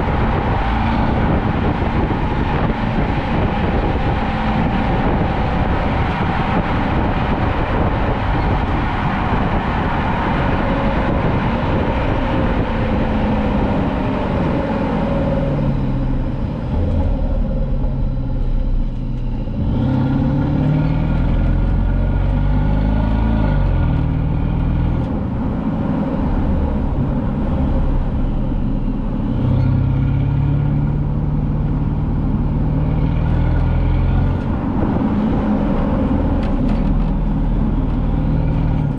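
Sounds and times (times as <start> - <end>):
car exhaust engine note: 0.0 - 22.3
road noise: 0.0 - 38.9.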